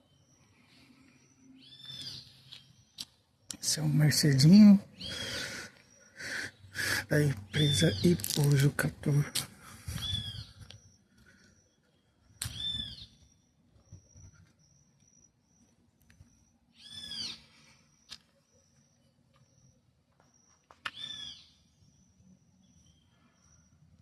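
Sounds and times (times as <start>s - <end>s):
bird calling: 0.0s - 13.3s, 16.8s - 18.7s, 20.5s - 21.7s.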